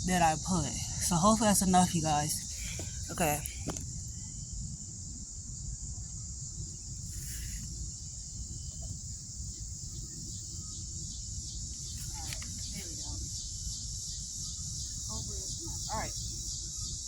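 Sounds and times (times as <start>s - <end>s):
crickets chirping: 0.0s - 17.0s
brief hiss: 7.0s - 7.8s.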